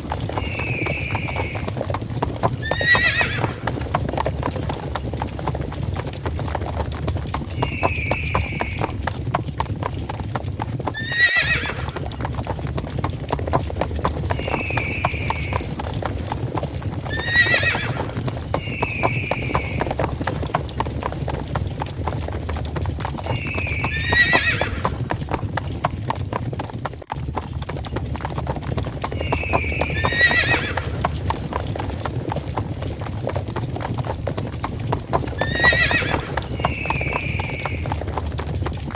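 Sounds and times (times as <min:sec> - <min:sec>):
galloping hooves clattering: 0:00.0 - 0:38.9
horse whinnying: 0:00.2 - 0:04.3, 0:07.5 - 0:09.2, 0:10.8 - 0:12.3, 0:14.2 - 0:16.3, 0:17.0 - 0:20.6, 0:23.1 - 0:25.3, 0:29.0 - 0:31.4, 0:35.1 - 0:38.2
short high horse cries: 0:02.6 - 0:03.6, 0:11.0 - 0:11.9, 0:17.1 - 0:19.8, 0:23.4 - 0:24.9, 0:29.3 - 0:30.9, 0:35.4 - 0:37.1.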